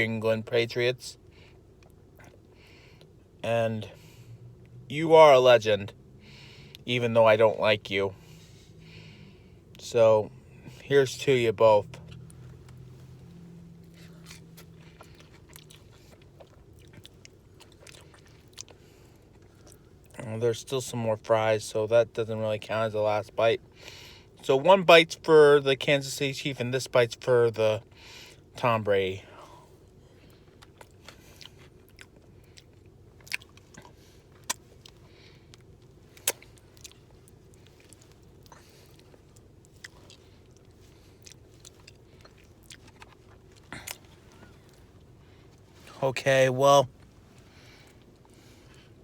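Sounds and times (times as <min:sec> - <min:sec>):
person chewing food: 0:01.7 - 0:03.2, 0:12.0 - 0:20.1, 0:29.8 - 0:46.0
wet mouth clicks: 0:36.2 - 0:36.9.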